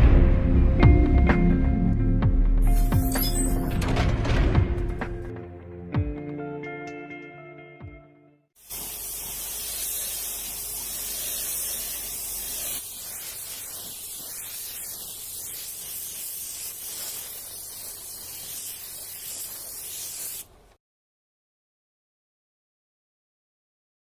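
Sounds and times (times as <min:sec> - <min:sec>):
steady hiss: 0:08.6 - 0:20.8.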